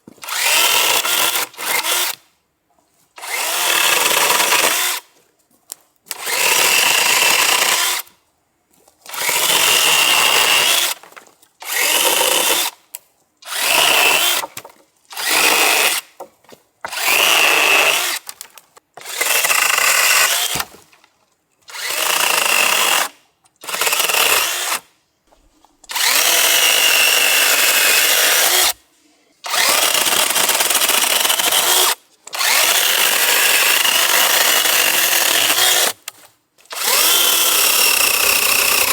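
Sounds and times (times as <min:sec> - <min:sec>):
chainsaw cutting wood: 0:00.1 - 0:02.3, 0:03.2 - 0:05.1, 0:06.1 - 0:08.1, 0:09.1 - 0:12.8, 0:13.4 - 0:20.9, 0:21.6 - 0:24.9, 0:25.8 - 0:28.8, 0:29.4 - 0:38.9
chainsaw running in bursts: 0:29.5 - 0:36.0, 0:36.7 - 0:38.9.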